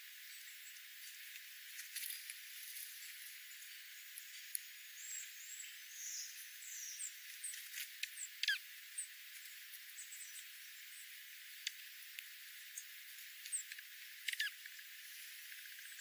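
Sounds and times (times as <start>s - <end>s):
steady high hiss: 0.0s - 16.0s
small birds chirping: 1.8s - 16.0s.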